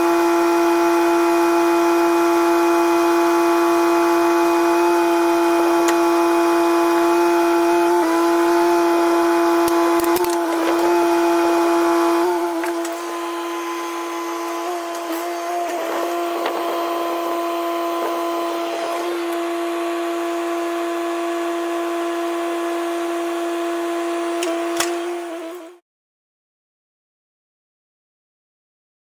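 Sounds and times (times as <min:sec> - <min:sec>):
high-pitched mechanical whine: 0:00.0 - 0:25.8
scattered clicks: 0:09.7 - 0:10.9.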